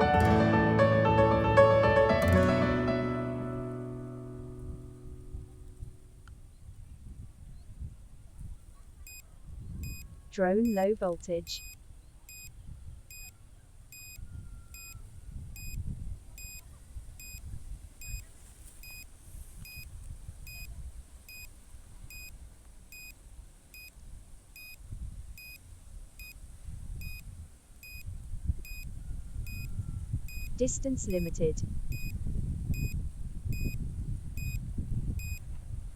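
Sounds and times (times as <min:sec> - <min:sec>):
wind buffeting microphone: 0:04.5 - 0:11.1, 0:14.2 - 0:18.4, 0:19.2 - 0:22.6, 0:24.0 - 0:35.9
low-battery warning beeps: 0:09.8 - 0:12.5, 0:13.1 - 0:15.0, 0:15.6 - 0:15.8, 0:16.4 - 0:16.6, 0:17.2 - 0:18.2, 0:18.8 - 0:19.9, 0:20.5 - 0:20.7, 0:21.3 - 0:21.5, 0:22.1 - 0:23.2, 0:24.6 - 0:24.8, 0:25.4 - 0:25.6, 0:26.2 - 0:26.4, 0:27.0 - 0:27.2, 0:27.8 - 0:29.7, 0:30.3 - 0:33.8, 0:34.4 - 0:34.6, 0:35.2 - 0:35.4.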